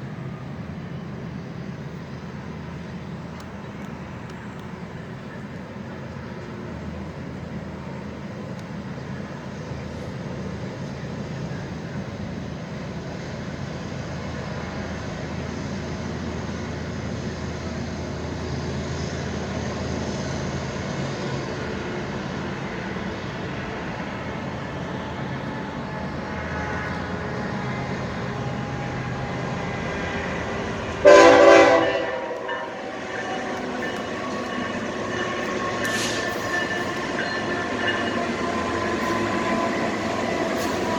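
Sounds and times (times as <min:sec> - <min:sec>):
train rumbling past: 0:00.0 - 0:40.9
train horn blast: 0:26.4 - 0:40.9.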